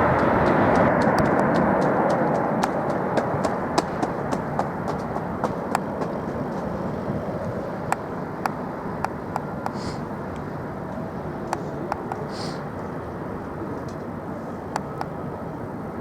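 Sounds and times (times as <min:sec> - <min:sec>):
engine noise: 0:00.0 - 0:16.0
sharp clicks: 0:11.5 - 0:12.3, 0:14.8 - 0:15.1.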